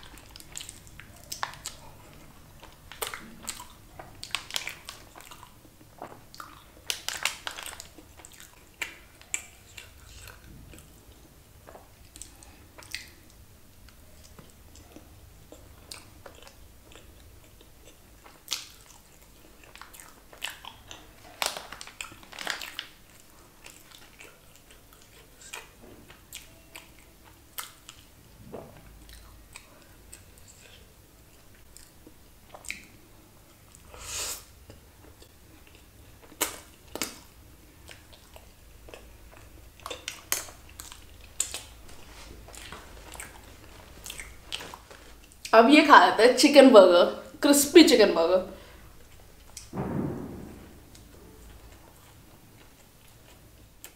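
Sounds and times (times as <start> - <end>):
person chewing food: 0.0 - 28.2, 28.8 - 45.5
mouth clicks and smacks: 34.6 - 37.3.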